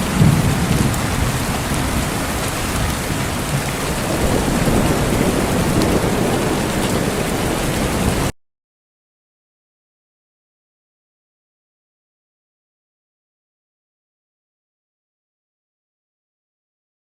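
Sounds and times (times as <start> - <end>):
low rumble of thunder: 0.0 - 8.3
heavy rain: 0.0 - 8.4.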